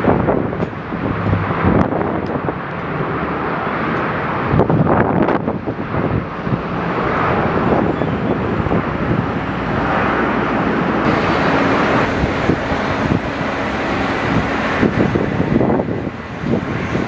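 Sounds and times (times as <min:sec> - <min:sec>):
airliner engines running: 0:00.0 - 0:17.0
wind on microphone: 0:00.0 - 0:17.0
thin high whine: 0:11.0 - 0:17.0.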